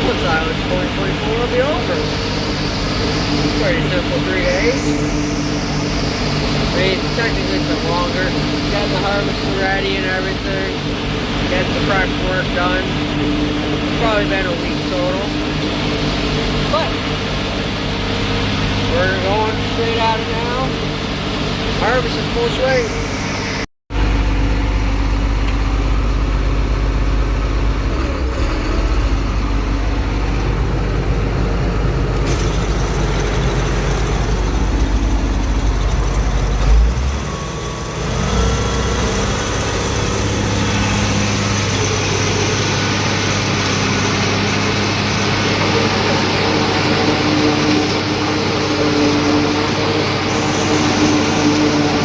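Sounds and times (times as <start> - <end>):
tractor engine running under load: 24.0 - 52.0.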